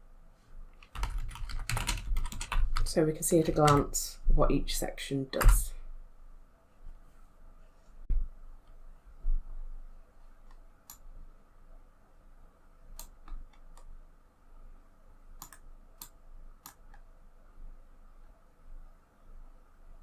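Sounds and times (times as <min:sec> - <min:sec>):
faint low hum: 0:00.0 - 0:20.0
computer mouse and keyboard clicks: 0:13.0 - 0:13.9, 0:15.4 - 0:17.1.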